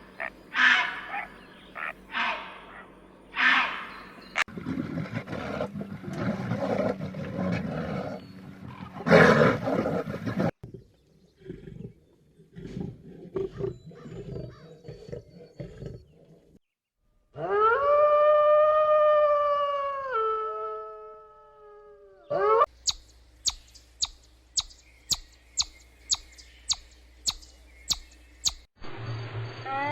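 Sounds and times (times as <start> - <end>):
big cat roaring and growling: 4.5 - 16.6.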